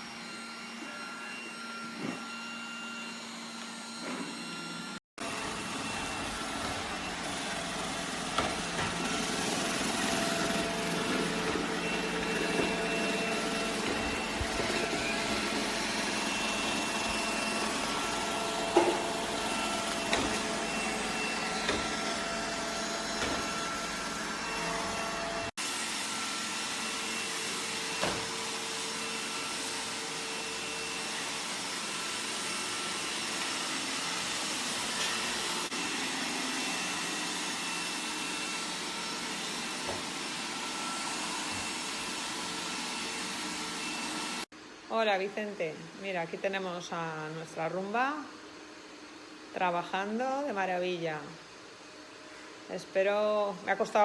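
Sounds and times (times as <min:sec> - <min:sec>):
robot vacuum whirring: 0:00.0 - 0:25.5.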